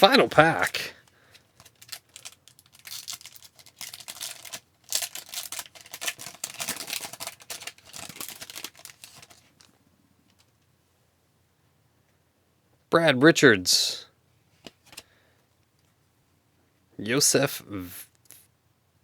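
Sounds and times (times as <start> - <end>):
wrapper tearing and crinkling: 1.6 - 9.7.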